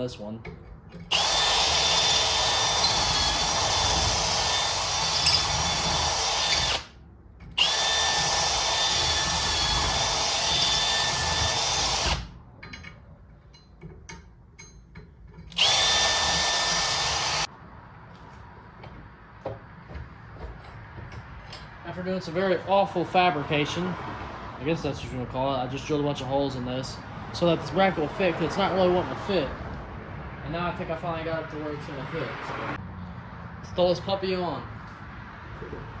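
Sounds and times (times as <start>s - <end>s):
electric drill whining: 1.1s - 6.9s, 7.6s - 12.3s, 15.5s - 17.5s.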